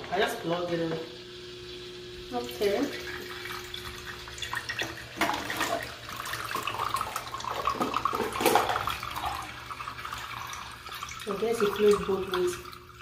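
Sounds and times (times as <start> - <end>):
fountain water trickling and splashing: 10.8 - 13.0.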